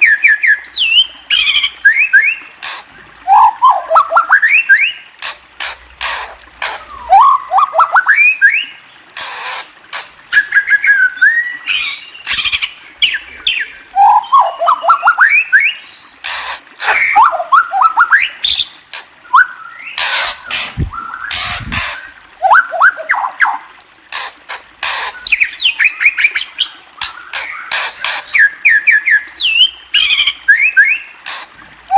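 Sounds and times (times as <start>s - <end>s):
harsh bird squawks: 16.2s - 18.6s, 19.9s - 28.5s.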